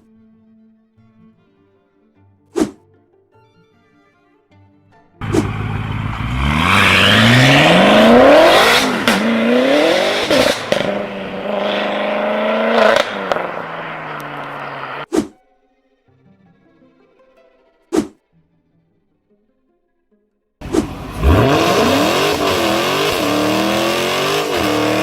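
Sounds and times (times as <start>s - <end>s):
car engine accelerating hard: 5.2s - 15.1s, 20.6s - 25.0s
exhaust cracks: 5.2s - 15.1s, 20.6s - 25.0s.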